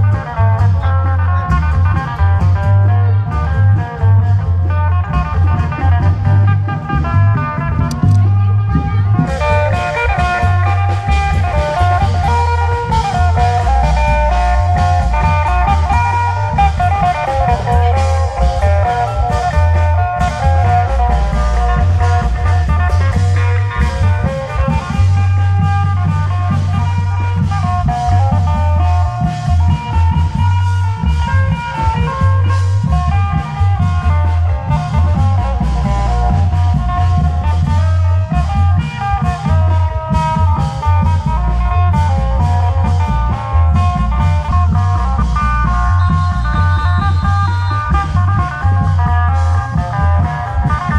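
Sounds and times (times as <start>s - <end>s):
amplified guitar-like melody: 0.0s - 50.9s
drums: 0.0s - 50.9s
heavy bass line: 0.0s - 50.9s.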